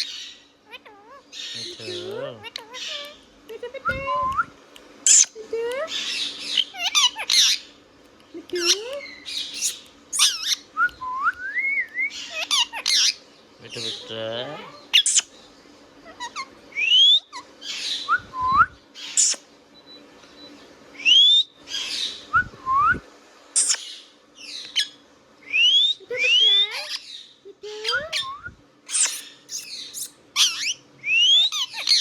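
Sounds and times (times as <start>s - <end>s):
parrot chirps: 0.0s - 3.2s, 5.0s - 7.7s, 8.5s - 15.3s, 16.0s - 18.1s, 19.0s - 19.5s, 23.6s - 32.0s
parrot harsh squawks: 5.9s - 7.6s, 9.5s - 10.6s, 12.2s - 13.2s, 25.8s - 27.1s, 28.9s - 32.0s
parrot rising whistles: 27.9s - 29.7s.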